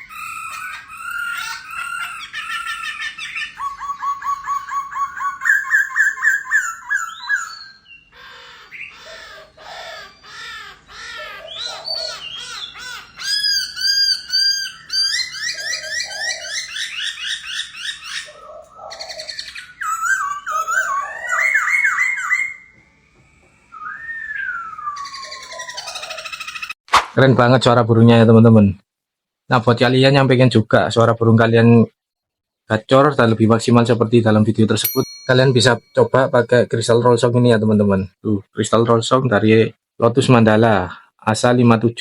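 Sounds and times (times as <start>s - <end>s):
songbird whistling and trilling: 0.0s - 9.1s, 11.5s - 26.8s.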